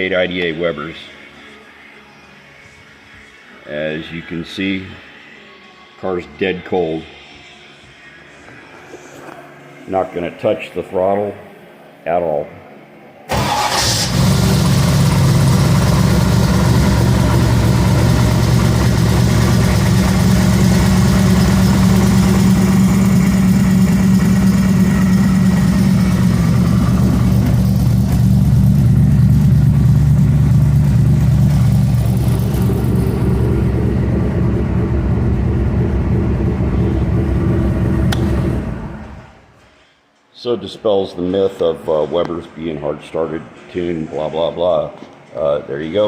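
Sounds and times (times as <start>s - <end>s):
car engine idling: 13.3s - 39.4s.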